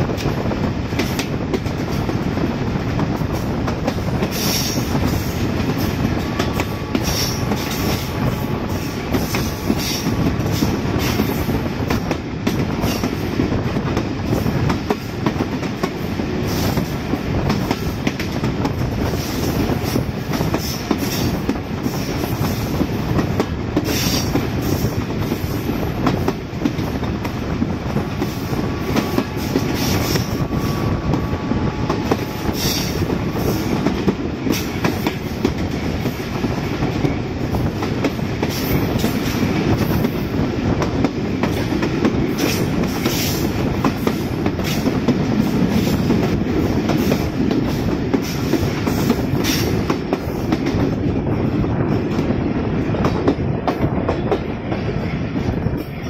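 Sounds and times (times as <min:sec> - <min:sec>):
train wheels rumbling and clicking: 0:00.0 - 0:56.0.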